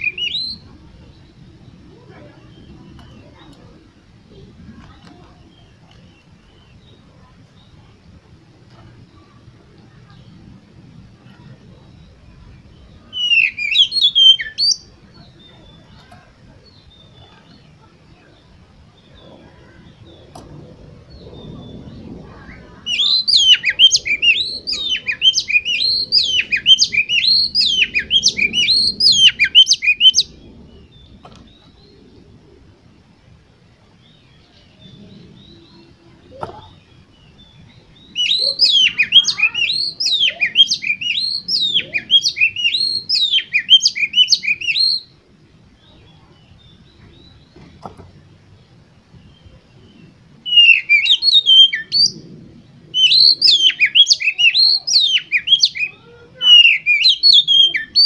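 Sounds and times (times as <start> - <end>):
magpie-robin whistled song: 0.0 - 1.9, 11.3 - 17.6, 21.3 - 31.9, 37.0 - 45.2, 49.2 - 52.3, 52.9 - 58.0.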